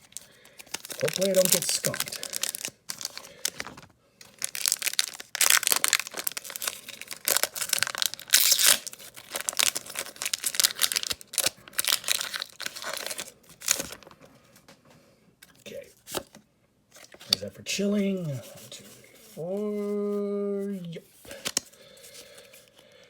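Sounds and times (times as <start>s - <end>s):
foil wrapper crinkling and tearing: 0.0s - 14.2s.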